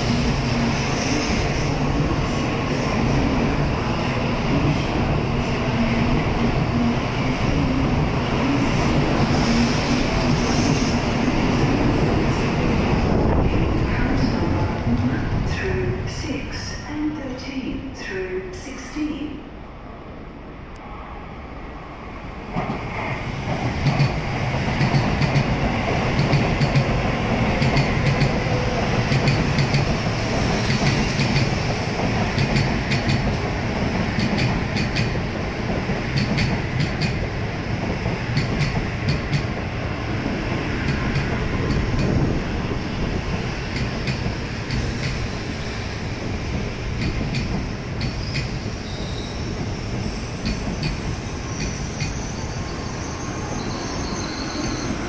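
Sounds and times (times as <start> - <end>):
train rumbling past: 0.0 - 55.0.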